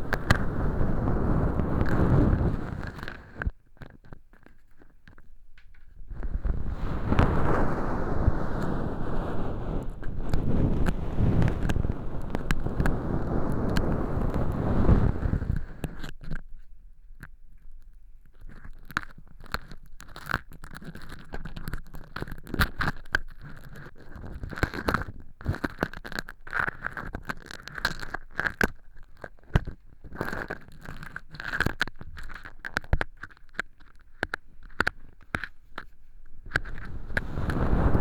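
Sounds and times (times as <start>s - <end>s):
rustling against microphone: 0.0s - 16.7s, 18.4s - 38.0s
earpick scraping fake earwax: 9.5s - 16.1s.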